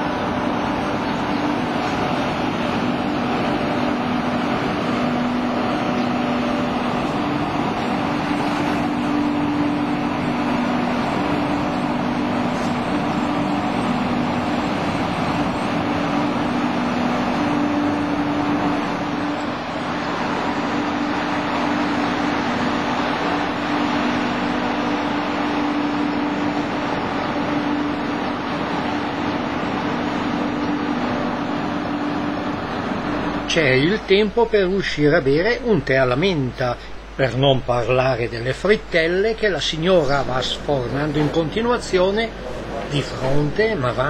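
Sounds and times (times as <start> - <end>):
low two-note hum: 0.0 - 34.4
passenger train running noise: 0.0 - 44.0.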